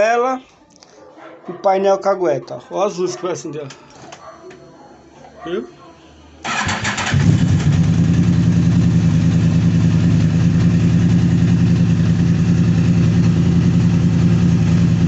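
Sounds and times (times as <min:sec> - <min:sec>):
motorcycle engine idling: 0:06.5 - 0:15.0.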